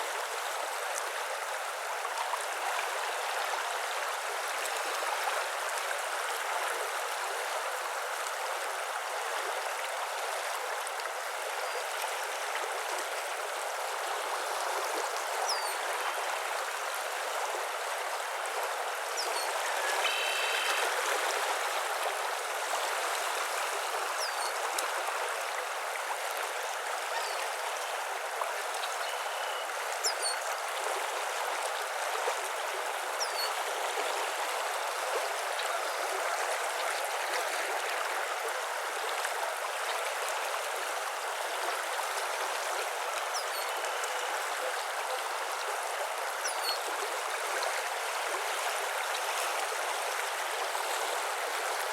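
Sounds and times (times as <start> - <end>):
stream water rushing: 0.0 - 51.9
faint bird chirps: 19.2 - 20.9, 29.0 - 30.4
pitched bird call: 19.2 - 20.9.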